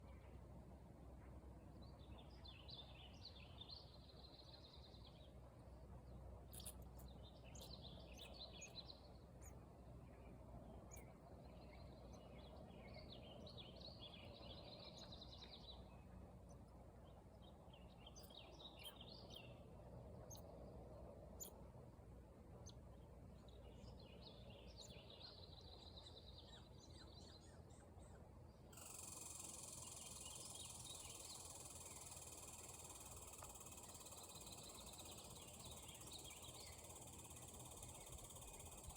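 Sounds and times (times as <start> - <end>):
low outdoor background noise: 0.0 - 38.9
faint bird twittering: 6.5 - 16.6, 23.4 - 38.9
steady high-pitched hiss: 28.6 - 38.9.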